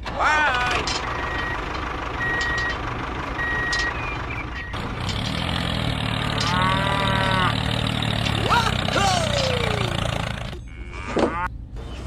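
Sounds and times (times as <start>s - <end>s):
low engine hum: 0.0s - 10.8s
low vehicle rumble: 0.0s - 12.0s
reversing beeper: 1.0s - 4.8s.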